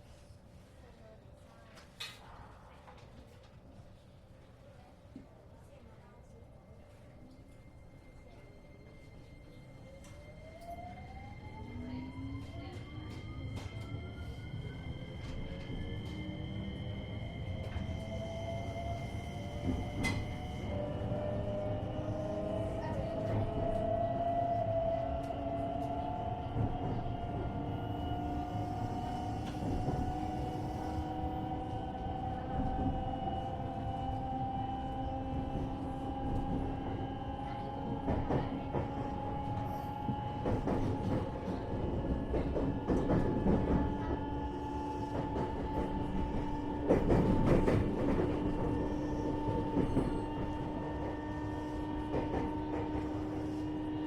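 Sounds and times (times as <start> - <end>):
wheels rumbling on rail: 12.1 - 54.0.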